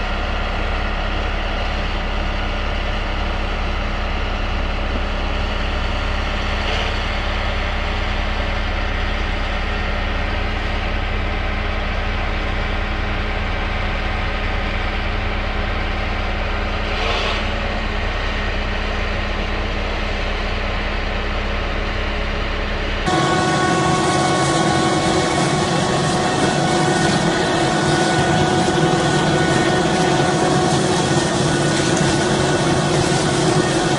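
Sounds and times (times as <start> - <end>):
heavy vehicle engine droning: 0.0 - 33.9
strong steady tones: 23.1 - 33.9.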